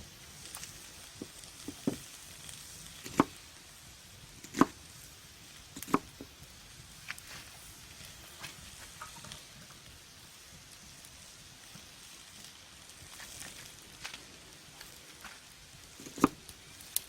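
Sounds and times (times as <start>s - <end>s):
knife cutting onion on board: 3.0s - 3.4s, 4.4s - 4.8s, 5.8s - 6.3s, 16.0s - 16.4s.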